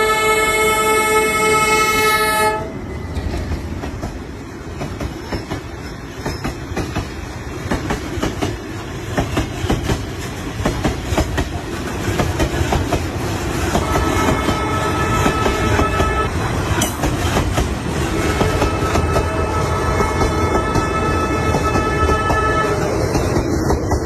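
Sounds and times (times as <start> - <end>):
train horn chord: 0.0 - 2.8, 13.8 - 16.4, 18.1 - 23.0
train rumbling: 0.0 - 24.0.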